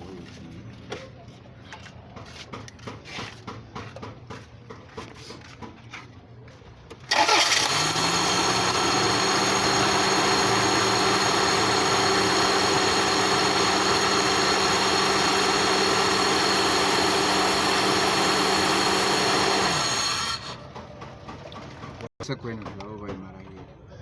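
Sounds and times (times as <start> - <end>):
car engine starting and idling: 7.0 - 22.1.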